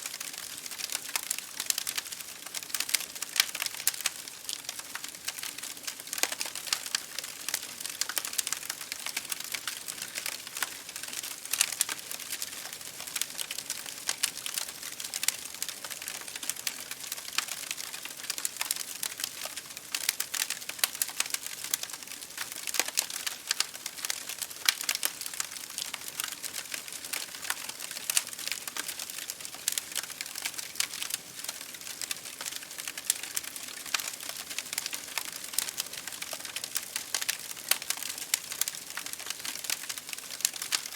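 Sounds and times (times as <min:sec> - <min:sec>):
campfire crackling: 0:00.0 - 0:40.9
soft hiss of fire: 0:00.0 - 0:40.9.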